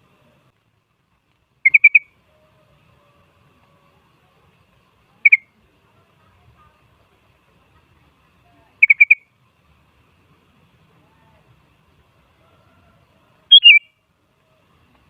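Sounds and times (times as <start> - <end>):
bird call short clear notes: 13.5 - 13.9.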